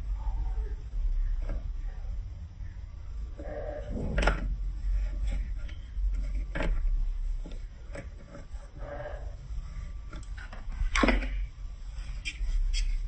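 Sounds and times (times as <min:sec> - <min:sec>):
low rumble: 0:00.0 - 0:07.9.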